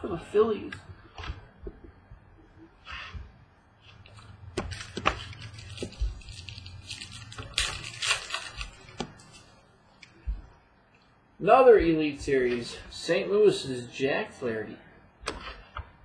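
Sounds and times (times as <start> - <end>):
cards and wrapper rustling: 3.8 - 10.2.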